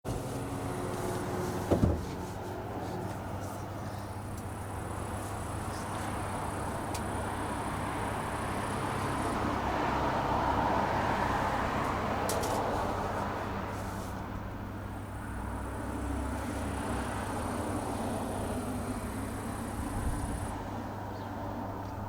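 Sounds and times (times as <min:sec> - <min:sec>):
motor vehicle engine noise: 0:00.1 - 0:22.0
passing traffic: 0:00.1 - 0:22.0
short thump: 0:01.7 - 0:02.2.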